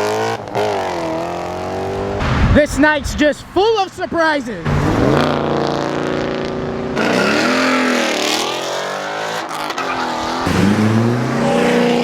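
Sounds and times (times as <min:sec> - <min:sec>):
car engine revving hard: 0:04.7 - 0:12.0
tires squealing: 0:07.0 - 0:12.0.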